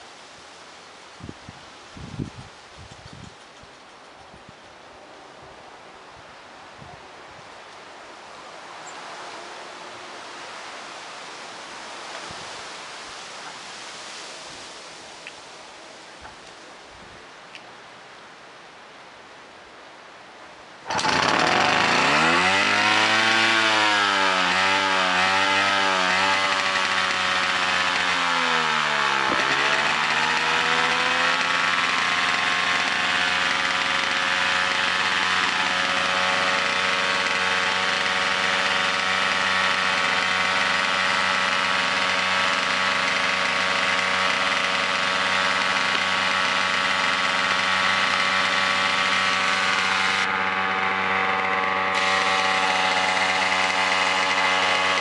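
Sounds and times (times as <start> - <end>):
small engine surging unevenly: 20.8 - 55.0.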